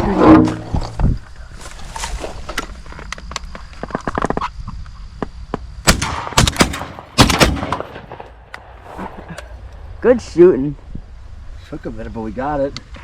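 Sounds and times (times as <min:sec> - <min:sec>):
shotgun shots: 0:05.8 - 0:08.5.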